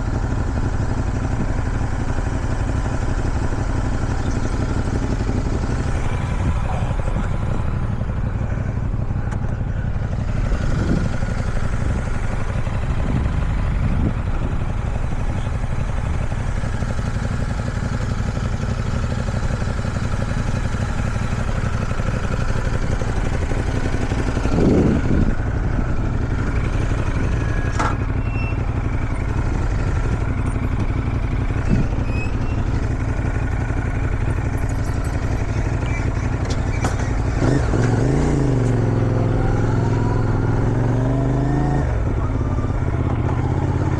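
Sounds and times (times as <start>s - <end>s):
motorcycle engine running: 0.0s - 43.9s
wind rushing over microphone: 12.9s - 14.8s, 24.5s - 25.4s.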